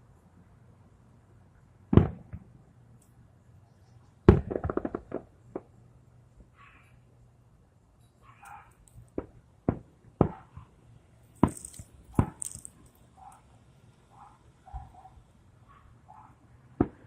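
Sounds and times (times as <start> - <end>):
fireworks sharp pops: 1.9 - 2.5, 4.2 - 5.8, 8.9 - 10.7, 11.3 - 13.0, 16.8 - 17.0
fireworks bangs: 11.4 - 12.9.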